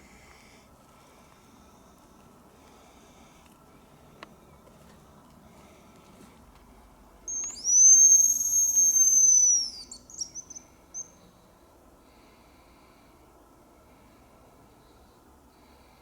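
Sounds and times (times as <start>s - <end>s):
high bird call whistle: 7.3s - 11.1s.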